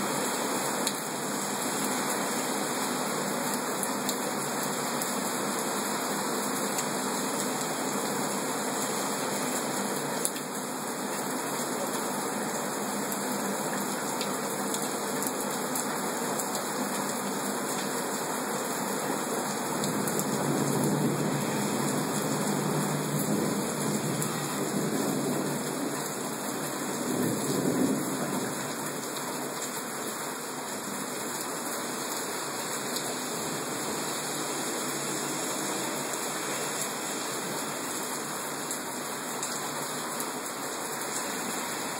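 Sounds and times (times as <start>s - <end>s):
heavy rain pouring: 0.0s - 41.9s.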